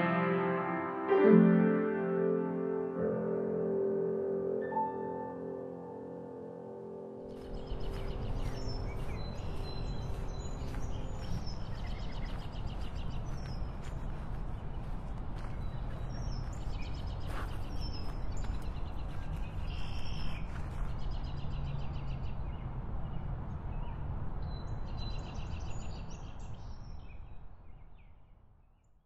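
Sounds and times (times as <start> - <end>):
small birds chirping: 7.3 - 27.3.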